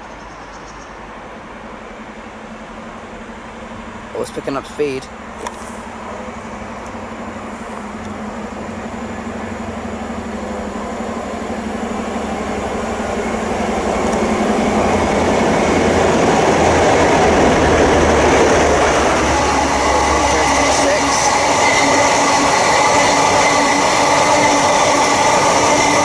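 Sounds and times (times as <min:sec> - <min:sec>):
diesel train engine: 0:00.0 - 0:26.0
train wheel noise: 0:00.0 - 0:26.0.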